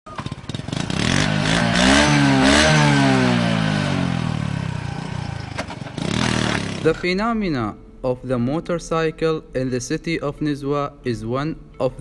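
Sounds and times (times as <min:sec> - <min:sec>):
motorcycle engine revving: 0:00.1 - 0:07.0.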